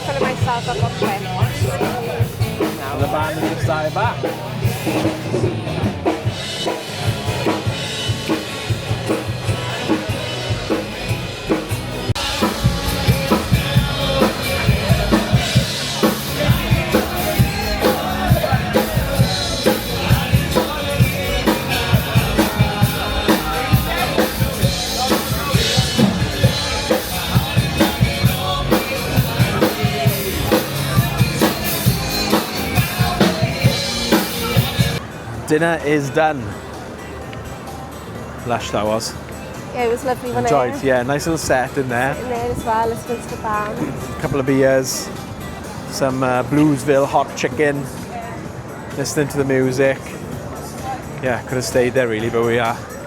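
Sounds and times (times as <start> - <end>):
drum kit beat: 0.0 - 35.0
live band playing: 0.0 - 35.2, 38.3 - 47.0
person singing: 12.2 - 35.0.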